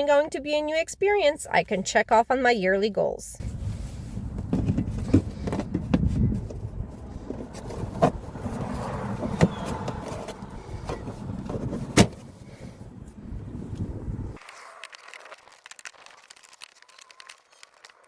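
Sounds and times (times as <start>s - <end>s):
steady low rumble: 3.4s - 14.4s
knocks and clicks of handling: 4.3s - 12.2s.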